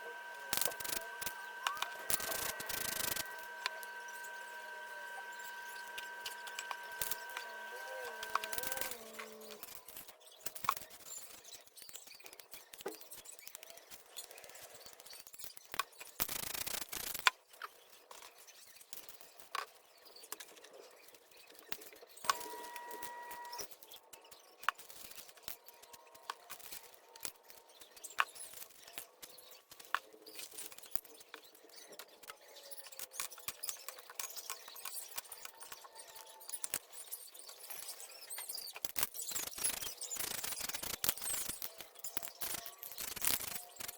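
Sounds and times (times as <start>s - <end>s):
high steady tone: 0.0s - 9.6s, 22.3s - 23.6s.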